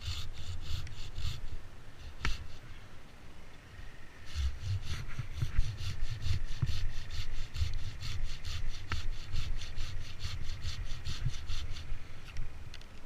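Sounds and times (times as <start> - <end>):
hand saw cutting wood: 0.0 - 2.6, 4.2 - 12.0.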